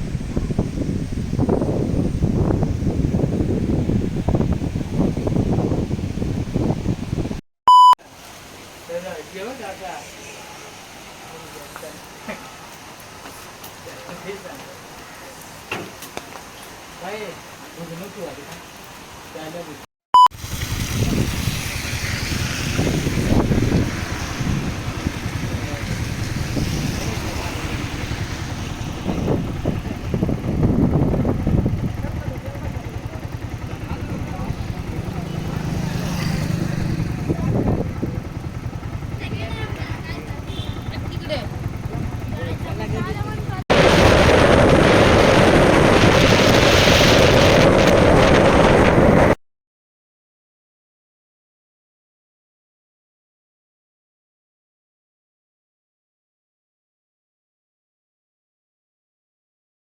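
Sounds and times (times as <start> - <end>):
wind buffeting microphone: 0.0 - 7.4, 20.5 - 49.4
short beep: 7.7 - 8.0
waterfall rushing: 8.1 - 15.7.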